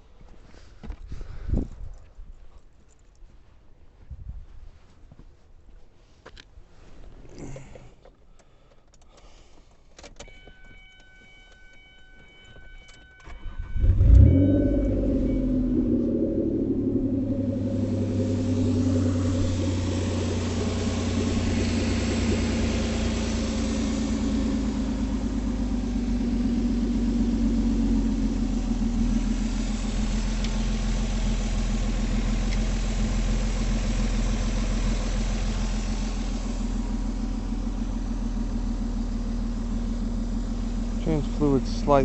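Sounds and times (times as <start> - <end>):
car engine idling: 13.4 - 42.0.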